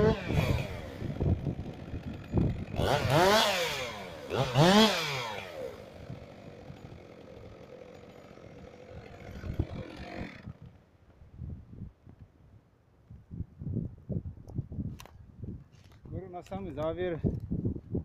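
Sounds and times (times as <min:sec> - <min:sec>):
chainsaw engine revving: 0:00.0 - 0:10.7.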